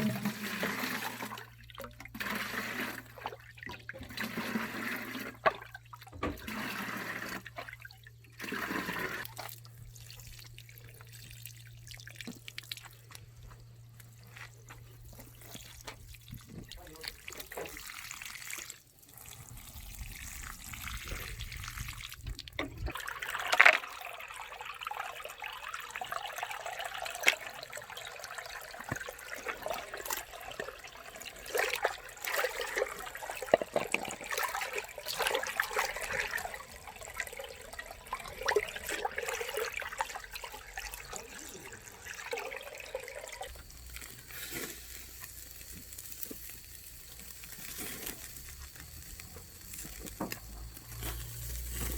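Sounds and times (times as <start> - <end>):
running water splashing: 14.2 - 51.9.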